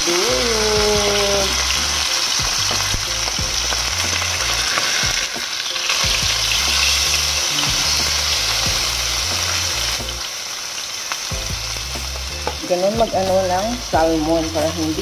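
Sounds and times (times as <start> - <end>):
background music with bass: 0.0 - 10.3, 11.3 - 15.0
fish sizzling in a pan: 0.0 - 15.0.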